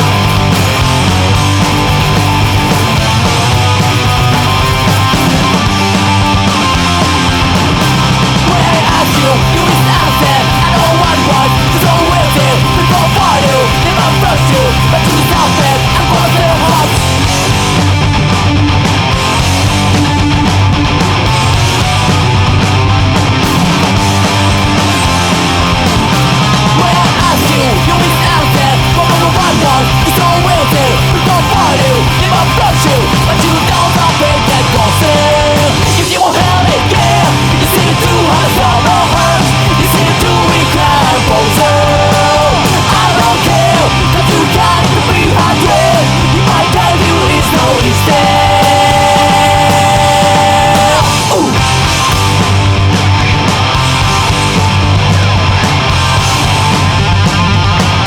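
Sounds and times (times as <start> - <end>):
punk rock song: 0.0 - 58.0
shouted lead vocal: 0.0 - 58.0.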